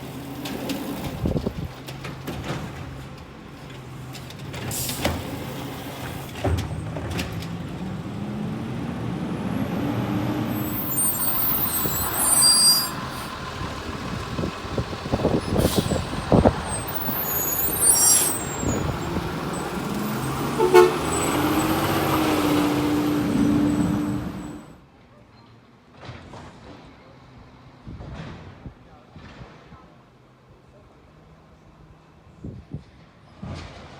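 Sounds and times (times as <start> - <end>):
truck engines accelerating: 0.0 - 24.8
short high-pitched squeals: 10.4 - 13.4, 15.4 - 22.3.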